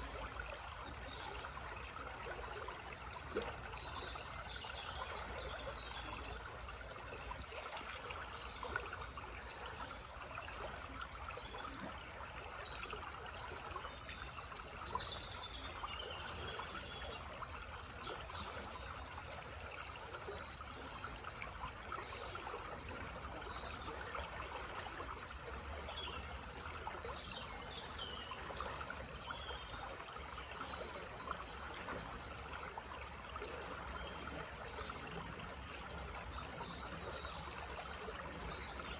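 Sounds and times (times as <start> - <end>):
stream trickling: 0.0 - 38.9
songbirds chirping: 11.3 - 38.9.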